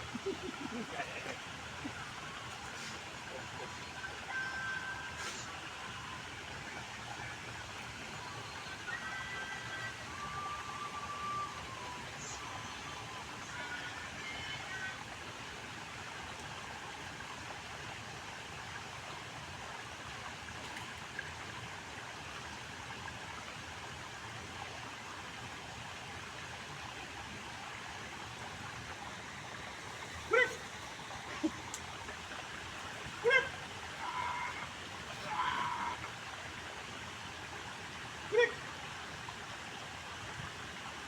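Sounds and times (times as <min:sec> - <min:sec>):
dog barking: 0:30.3 - 0:30.6, 0:33.2 - 0:33.5.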